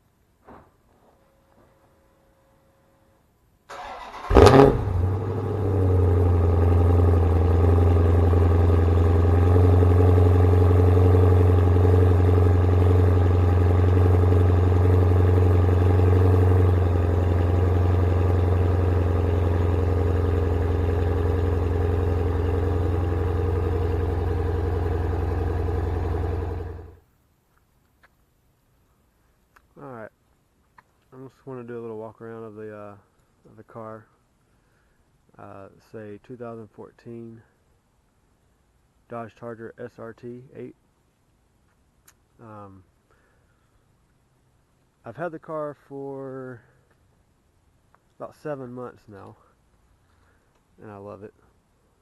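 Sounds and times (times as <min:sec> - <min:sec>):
car engine idling: 0:03.7 - 0:27.0.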